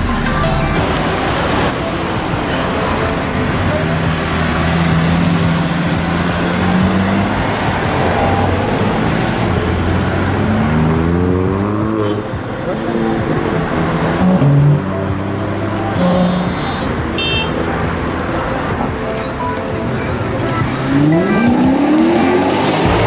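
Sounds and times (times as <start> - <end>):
car engine accelerating: 2.8 - 12.3, 20.4 - 23.0.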